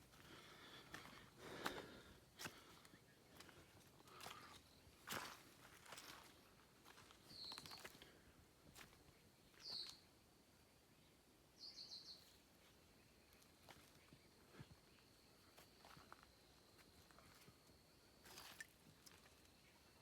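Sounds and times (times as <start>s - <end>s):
small birds chirping: 0.2s - 10.2s, 11.0s - 20.0s.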